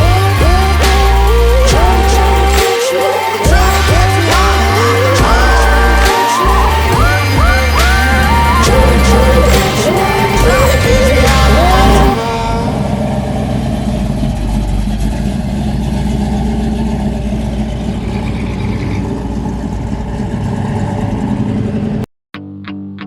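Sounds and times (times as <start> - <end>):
music: 0.0 - 12.6, 22.4 - 23.0
song: 0.0 - 14.1
car engine idling: 0.0 - 22.0.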